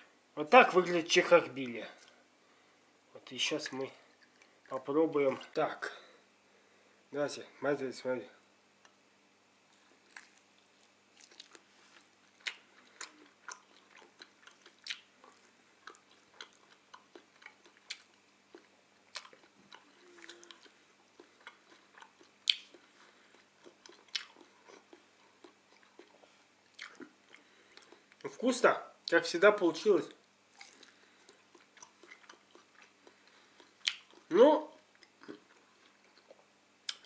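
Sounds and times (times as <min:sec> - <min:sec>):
person chewing: 0:03.7 - 0:04.8, 0:09.7 - 0:28.4, 0:30.2 - 0:37.0.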